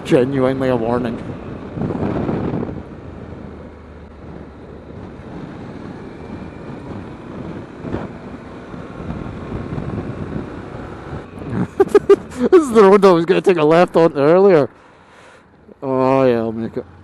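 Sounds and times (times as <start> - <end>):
wind noise on microphone: 0.8 - 12.4.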